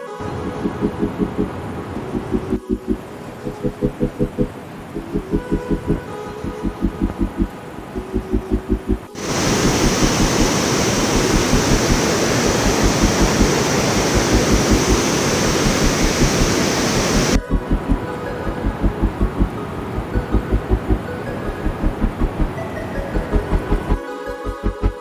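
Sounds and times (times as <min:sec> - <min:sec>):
loud steady rushing noise: 0:00.2 - 0:25.0
music with a steady beat: 0:02.2 - 0:10.4, 0:17.2 - 0:25.0.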